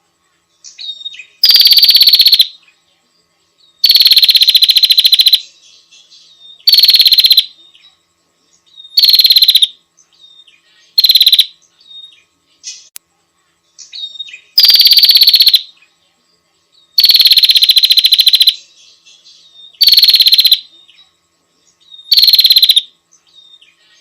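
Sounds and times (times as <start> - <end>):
soft bird chirps: 0.2 - 24.0
bird calling in loud trills: 0.8 - 2.5, 3.8 - 5.4, 6.6 - 7.5, 8.9 - 9.7, 11.0 - 11.5, 14.0 - 15.7, 17.0 - 18.6, 19.8 - 20.7, 22.0 - 22.9.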